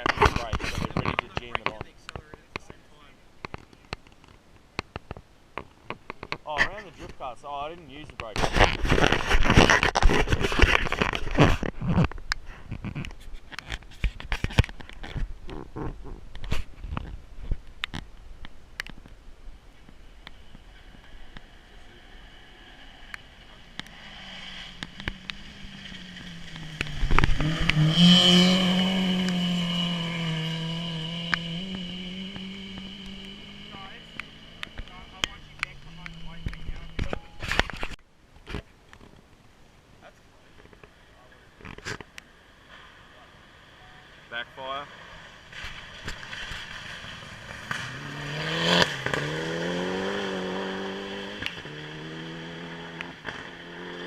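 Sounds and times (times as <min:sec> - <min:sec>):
exhaust pops and crackles: 0:00.0 - 0:43.2, 0:44.3 - 0:52.1, 0:52.7 - 0:54.0
race car engine passing: 0:21.0 - 0:37.0, 0:43.6 - 0:54.0.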